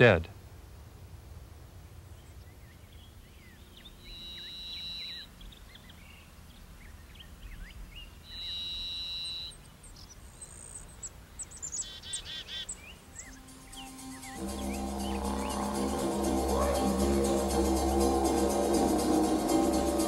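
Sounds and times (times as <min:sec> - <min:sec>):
high whistled bird notes: 0:04.0 - 0:05.2, 0:11.8 - 0:20.0
short bird chirps: 0:08.3 - 0:09.6.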